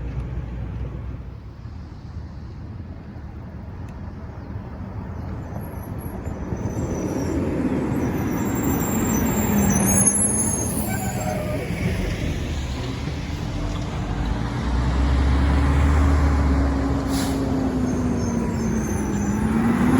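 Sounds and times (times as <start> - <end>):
garbage truck engine passing: 6.5 - 19.9
high squealing: 6.6 - 12.4, 17.2 - 19.9.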